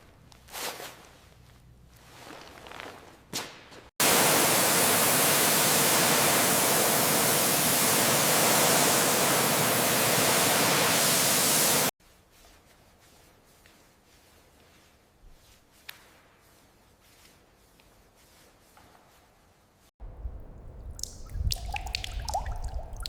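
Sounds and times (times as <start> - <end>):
compressed-air jet hissing: 4.0 - 11.9.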